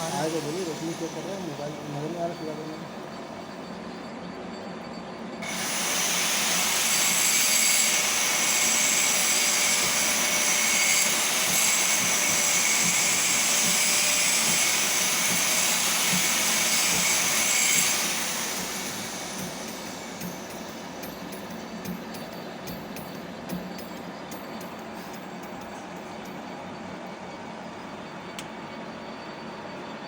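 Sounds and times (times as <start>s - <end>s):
machine tool motor whining: 5.4s - 26.3s.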